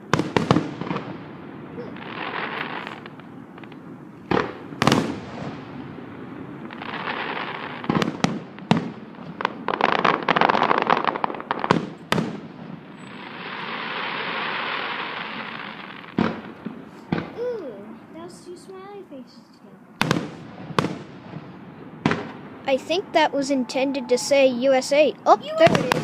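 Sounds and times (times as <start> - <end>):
firework shells bursting with bangs: 0.0 - 17.5, 20.0 - 22.7, 25.4 - 26.0
firework crackling hiss: 0.0 - 17.6
firework crackling: 0.0 - 18.7, 20.0 - 26.0.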